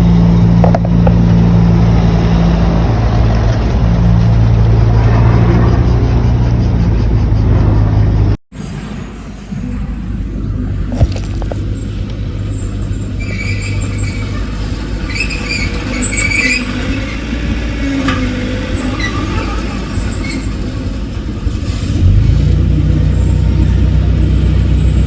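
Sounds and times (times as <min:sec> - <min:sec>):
heavy diesel engine running: 0:00.0 - 0:25.0
high-pitched squeaks: 0:12.5 - 0:21.0.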